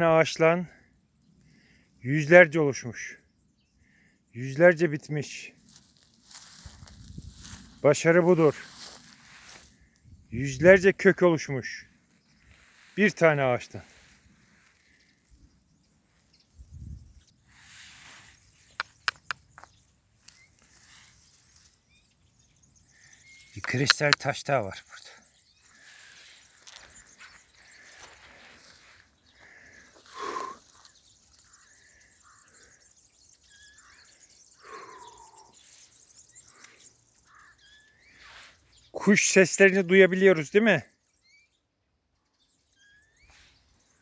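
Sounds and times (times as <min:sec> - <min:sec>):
faint birds calling: 0:00.0 - 0:44.0
rustle: 0:05.6 - 0:07.8, 0:08.5 - 0:09.9, 0:17.5 - 0:22.2
sharp clicks: 0:18.6 - 0:19.8, 0:23.6 - 0:24.4
falling bird call: 0:25.6 - 0:32.8, 0:33.5 - 0:35.9.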